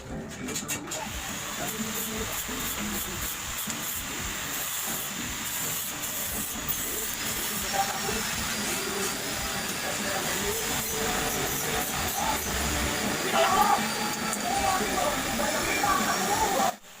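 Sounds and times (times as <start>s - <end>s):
steady hiss: 1.0s - 17.0s
faint voices: 6.8s - 16.8s.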